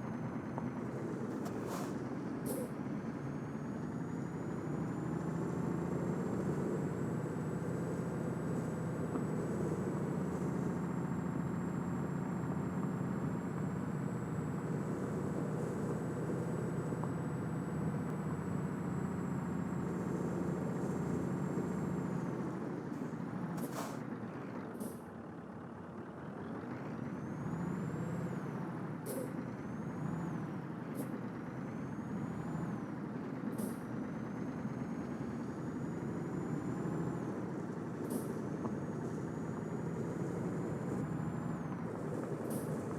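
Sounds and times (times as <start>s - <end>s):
diesel truck engine running: 0.0s - 42.9s
high engine whine: 0.0s - 42.9s
air brake hisses: 1.5s - 2.7s, 23.6s - 24.0s, 29.1s - 29.3s.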